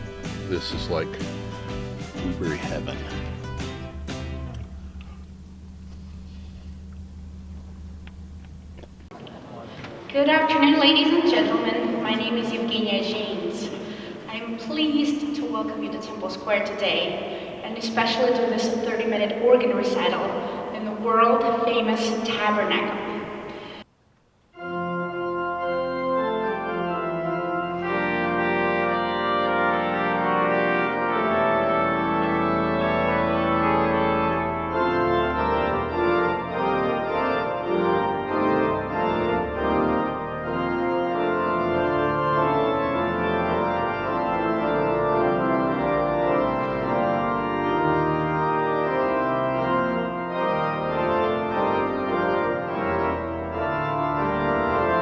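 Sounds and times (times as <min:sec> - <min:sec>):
pipe organ chords: 0:00.0 - 0:09.2, 0:24.6 - 0:55.0.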